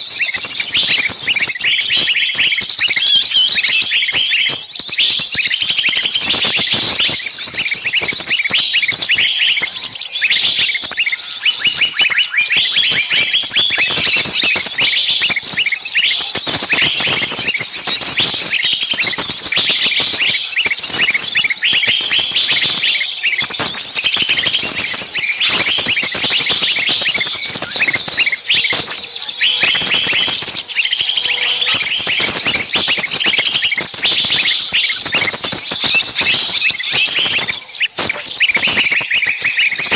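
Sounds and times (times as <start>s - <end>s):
songbirds chirping and shrieking: 0.0s - 39.9s.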